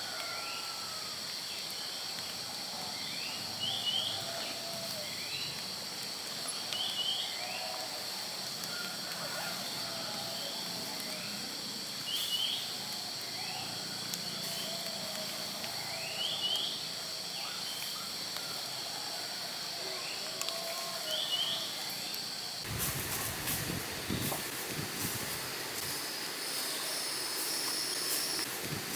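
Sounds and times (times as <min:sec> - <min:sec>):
insect drone: 0:00.0 - 0:28.9
loud hissing rush: 0:21.0 - 0:28.9.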